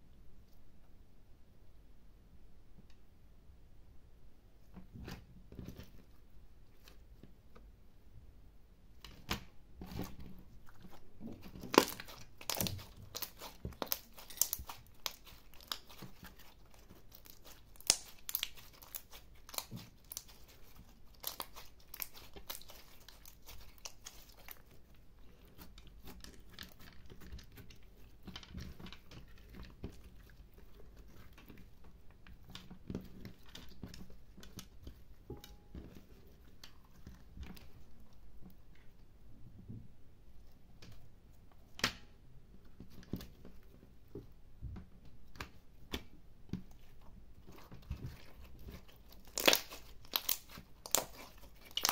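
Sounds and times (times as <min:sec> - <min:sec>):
slime crackling and popping: 0:10.8 - 0:36.0, 0:47.4 - 0:51.9.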